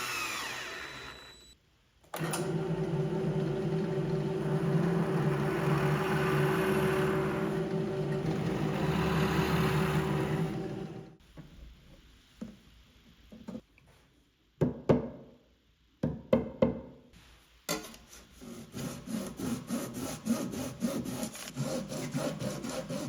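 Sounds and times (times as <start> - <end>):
power tool running: 0.0 - 1.4, 2.2 - 11.2
rhythmic rasping on wood: 18.4 - 23.0.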